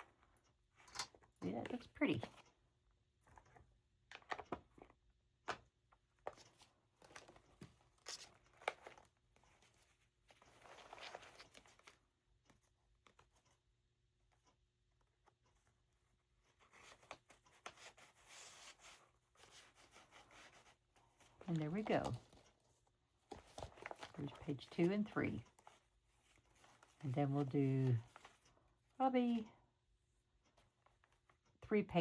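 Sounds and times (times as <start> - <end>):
paper rustling and crinkling: 6.2 - 12.0, 16.5 - 24.5.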